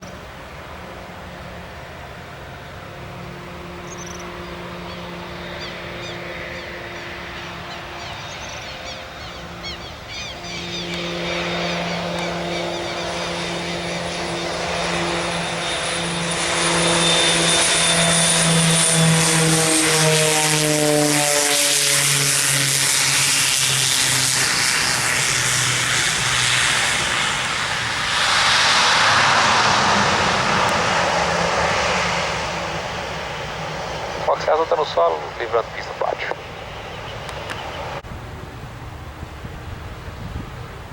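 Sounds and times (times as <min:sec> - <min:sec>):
distant turboprop drone: 0:00.0 - 0:40.9
birds chirping: 0:03.8 - 0:15.0, 0:33.7 - 0:38.0.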